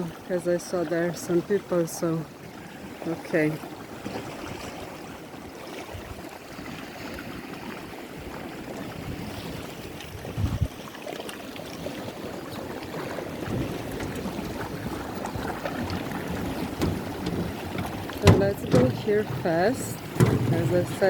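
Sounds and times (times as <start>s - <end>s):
sea water: 0.0s - 21.0s
wind: 0.0s - 21.0s
low thump: 16.6s - 21.0s.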